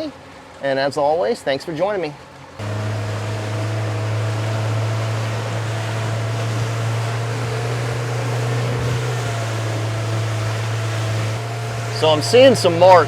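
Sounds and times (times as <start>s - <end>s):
wind and water hiss: 0.0s - 13.0s
outboard motor droning: 2.3s - 13.0s.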